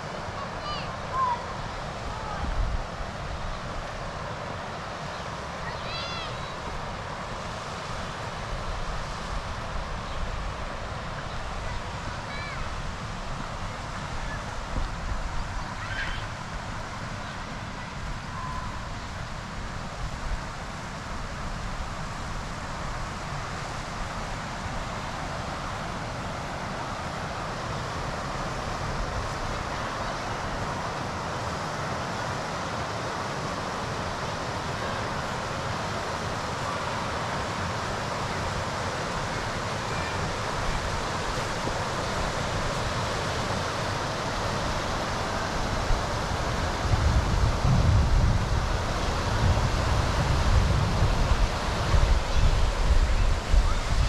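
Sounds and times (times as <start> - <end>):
steady rushing noise: 0.0 - 54.0
wind buffeting microphone: 44.2 - 54.0.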